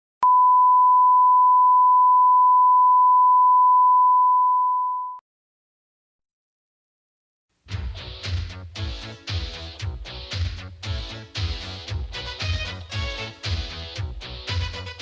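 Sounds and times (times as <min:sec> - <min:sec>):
pure reference tone: 0:00.2 - 0:05.2.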